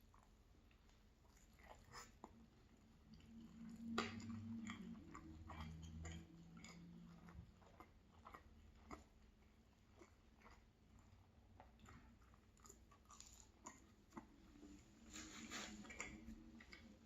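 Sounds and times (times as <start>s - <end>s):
chewing bread: 0.0s - 17.0s
wet mouth clicks: 3.1s - 9.1s.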